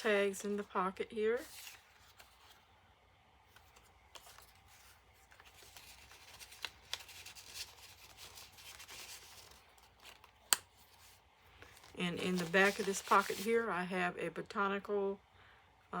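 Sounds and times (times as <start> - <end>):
paper rustling and sliding: 1.4 - 2.7, 3.5 - 13.6.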